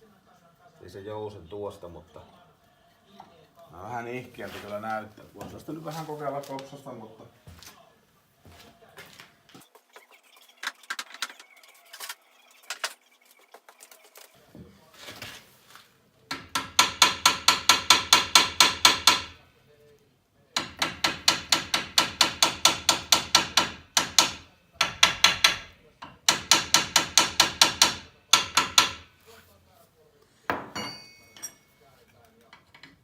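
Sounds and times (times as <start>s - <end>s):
hammer striking metal pins: 16.3s - 19.4s, 20.6s - 29.1s, 30.5s - 31.7s.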